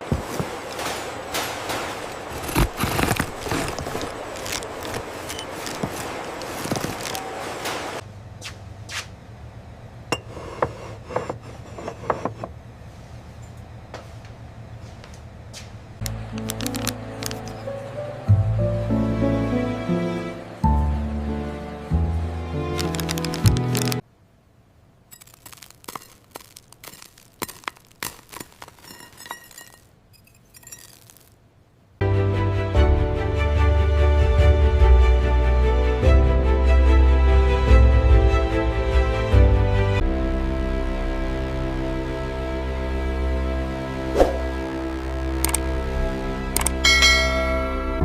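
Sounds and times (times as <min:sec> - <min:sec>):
music: 0:16.1 - 0:24.0, 0:32.0 - 0:48.0
sharp clicks and clinks: 0:25.1 - 0:31.4.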